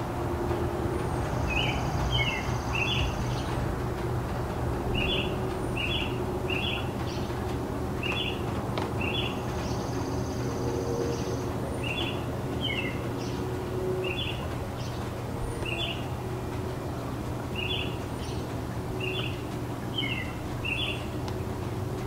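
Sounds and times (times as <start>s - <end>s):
low city hum: 0.0s - 22.0s
bird chirping: 9.0s - 16.2s.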